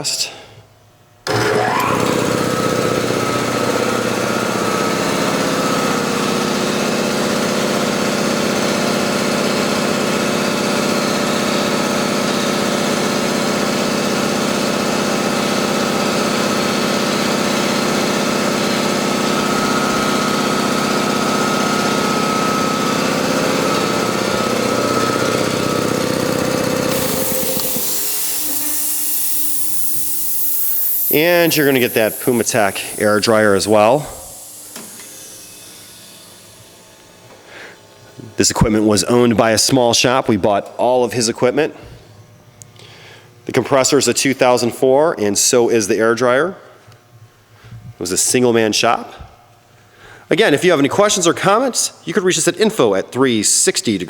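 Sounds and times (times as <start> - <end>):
air compressor running: 1.2 - 44.7, 46.6 - 51.8
hiss of escaping air: 24.7 - 37.9.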